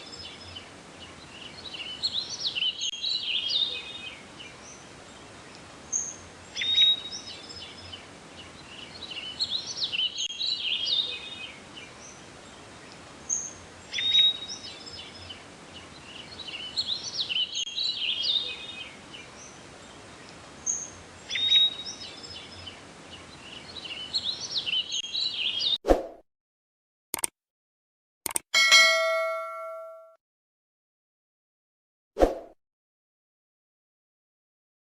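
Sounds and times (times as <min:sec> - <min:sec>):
birdsong whistles and chirps: 0:05.9 - 0:08.0, 0:09.0 - 0:12.2, 0:13.3 - 0:15.3, 0:16.2 - 0:19.5, 0:20.6 - 0:22.7, 0:23.5 - 0:25.8.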